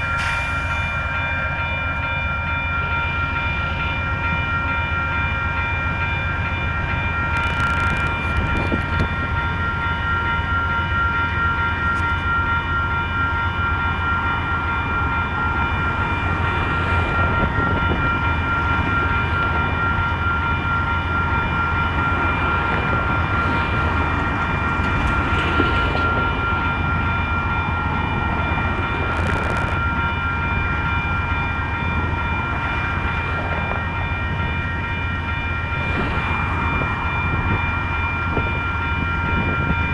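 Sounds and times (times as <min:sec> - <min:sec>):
diesel locomotive idling: 0:00.0 - 0:07.6.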